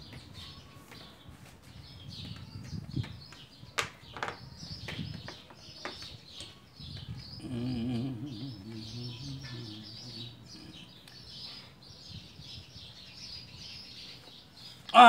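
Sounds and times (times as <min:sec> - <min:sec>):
birds chirping: 0:00.0 - 0:15.0
faint low voice murmuring: 0:06.2 - 0:12.9.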